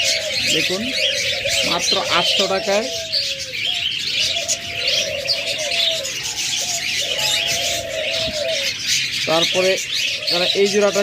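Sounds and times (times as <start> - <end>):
low drawn-out coos: 0.0 - 8.8
budgerigars chirping and chattering: 0.0 - 11.0.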